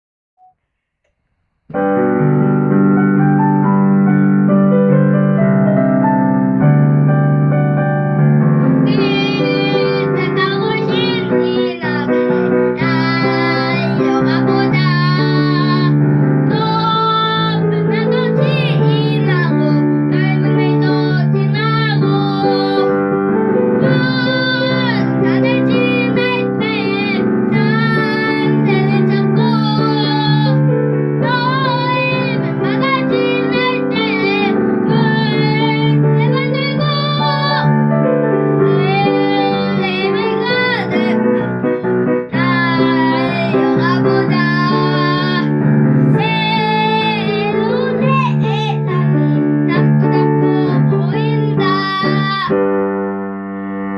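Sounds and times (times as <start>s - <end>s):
piano accompaniment: 1.6s - 53.9s
child singing: 8.8s - 23.1s, 23.7s - 37.8s, 38.6s - 52.7s.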